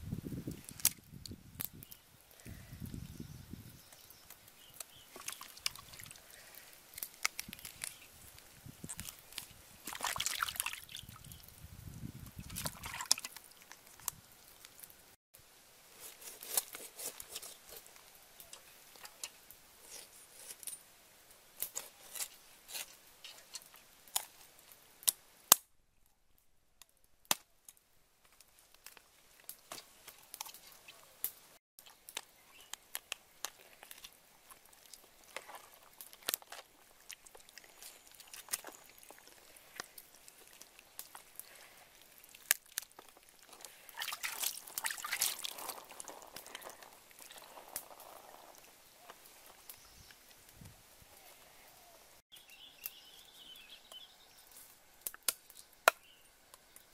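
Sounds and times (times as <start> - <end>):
water sloshing and dripping: 5.1 - 6.4, 8.8 - 11.5, 12.2 - 14.8, 34.4 - 48.7
carcass being pulled apart: 5.6 - 9.6, 16.0 - 18.0.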